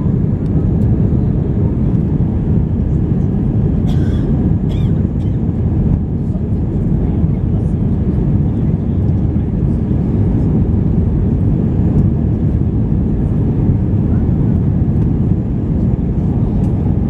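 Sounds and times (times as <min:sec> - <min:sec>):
airliner cabin jet engine rumble: 0:00.0 - 0:17.0.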